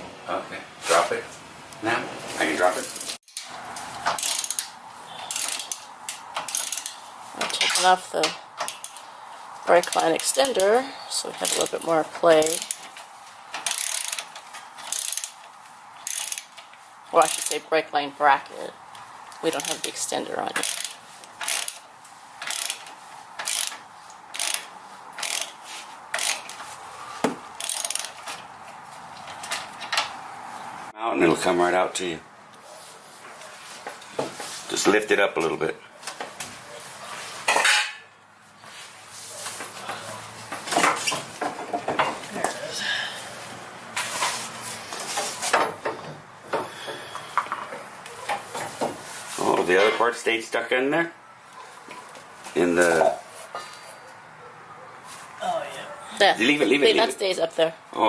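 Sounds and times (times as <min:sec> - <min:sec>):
ratchet wrench clicking: 0:04.1 - 0:04.7, 0:05.3 - 0:07.0, 0:08.6 - 0:09.0, 0:09.8 - 0:10.7, 0:11.4 - 0:12.9, 0:13.6 - 0:16.6, 0:17.2 - 0:17.6, 0:19.5 - 0:19.9, 0:20.5 - 0:26.6, 0:27.6 - 0:28.3.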